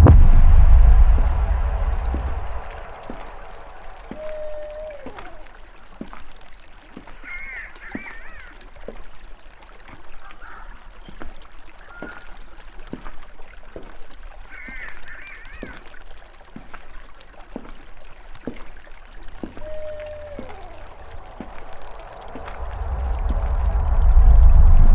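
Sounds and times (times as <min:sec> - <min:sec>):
trickling dripping water: 0:01.2 - 0:24.9
wavering bird calls: 0:04.0 - 0:05.6, 0:19.3 - 0:22.5.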